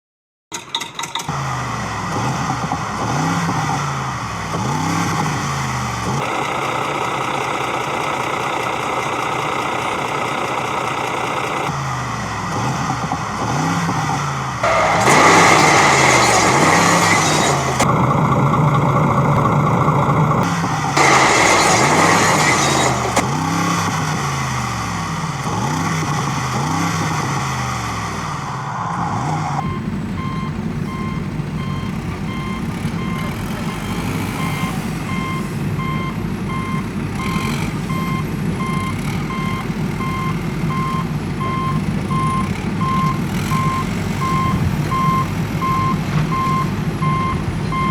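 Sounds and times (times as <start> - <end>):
engine drone wavering: 11.4 - 47.9
loud rushing bursts: 14.6 - 19.5, 20.5 - 23.5
low vehicle rumble: 27.4 - 47.9
reversing alarm beeping: 29.6 - 47.9.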